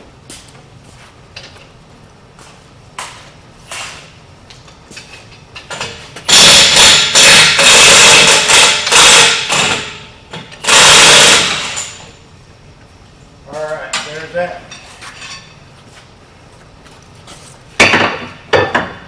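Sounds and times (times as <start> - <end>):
impact wrench hammering: 6.3 - 12.0.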